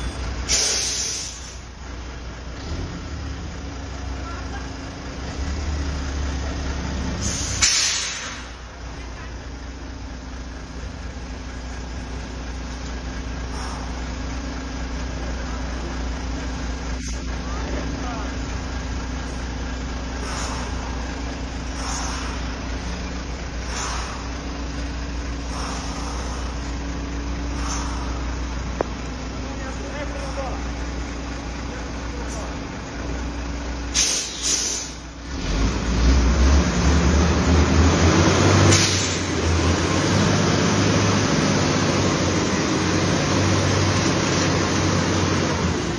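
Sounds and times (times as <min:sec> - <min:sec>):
truck diesel engine humming: 0:00.0 - 0:45.9
short bursts of hiss: 0:00.5 - 0:01.6, 0:34.0 - 0:35.0.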